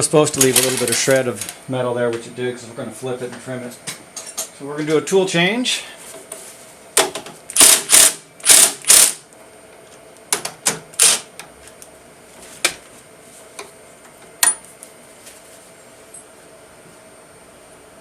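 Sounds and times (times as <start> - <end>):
milling machine noisy bursts: 7.6 - 9.2.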